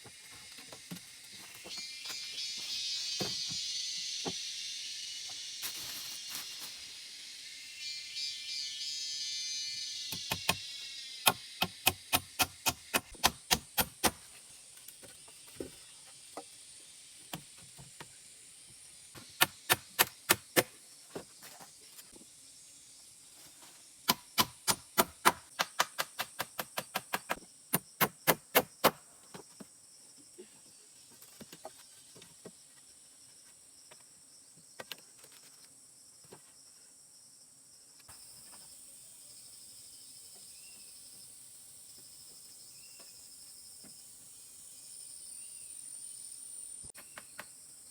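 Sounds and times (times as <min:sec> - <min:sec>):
insect hum: 0:00.0 - 0:47.9
hand tool striking wood: 0:10.1 - 0:10.6, 0:11.3 - 0:14.4, 0:19.2 - 0:20.8, 0:24.1 - 0:29.0.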